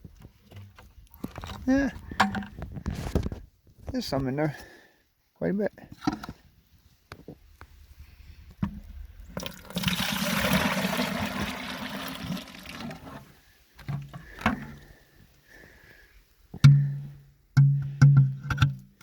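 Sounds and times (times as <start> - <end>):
buckets knocking and clattering: 0.2 - 3.4, 5.9 - 6.4, 8.6 - 14.9, 16.5 - 19.0
liquid splashing into bucket: 9.3 - 13.2.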